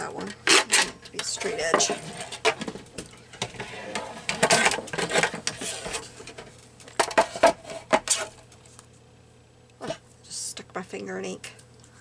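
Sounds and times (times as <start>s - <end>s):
paper rustling and scraping: 0.2s - 8.4s.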